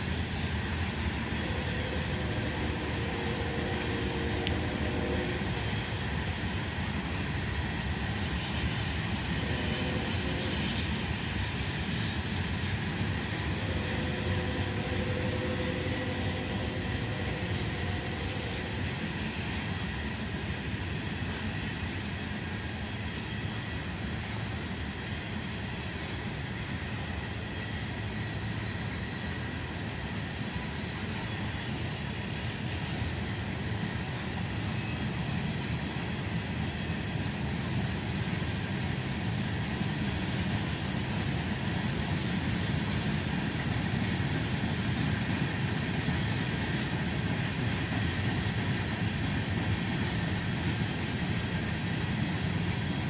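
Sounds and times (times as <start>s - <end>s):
freight train wheels rumbling on rail: 0.0s - 53.0s.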